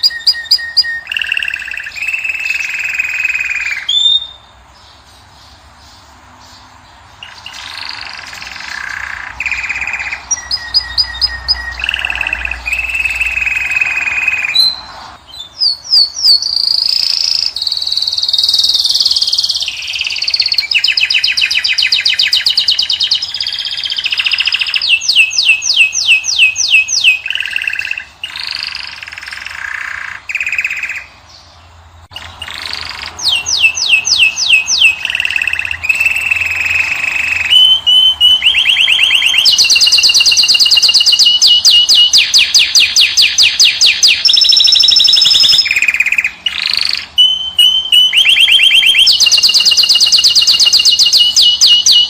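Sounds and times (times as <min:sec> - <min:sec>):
finch and canary song: 0:00.0 - 0:52.0.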